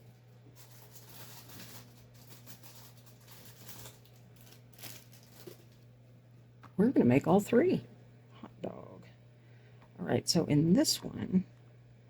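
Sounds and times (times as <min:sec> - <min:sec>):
rustling and handling noises: 0:00.0 - 0:06.0
low electrical hum: 0:00.0 - 0:12.0.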